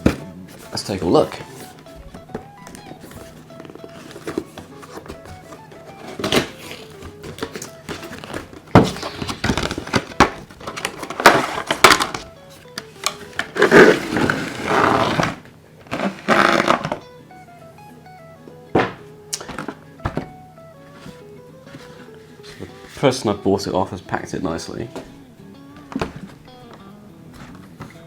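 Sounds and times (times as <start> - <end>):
light background music: 0.0 - 28.0
cardboard box being opened: 2.8 - 12.2, 13.0 - 17.0.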